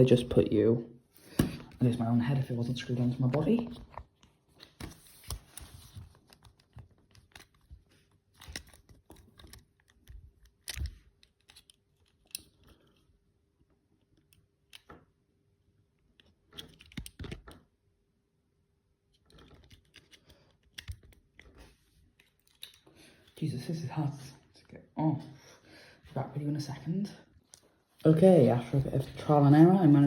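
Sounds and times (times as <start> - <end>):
hands handling small parts: 3.8 - 13.2, 16.0 - 17.6, 19.1 - 23.4.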